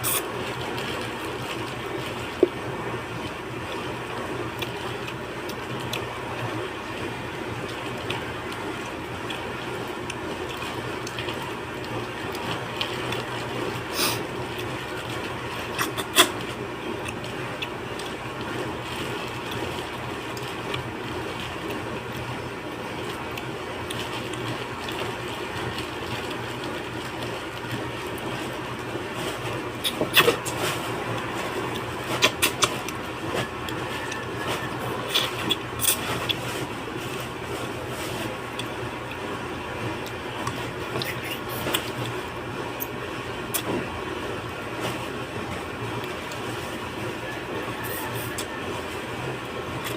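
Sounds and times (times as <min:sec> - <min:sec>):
low background hum: 0:00.0 - 0:49.9
chewing mouth noises: 0:07.6 - 0:21.8, 0:29.2 - 0:39.3, 0:40.0 - 0:43.9
slurp or rustle: 0:29.2 - 0:38.4.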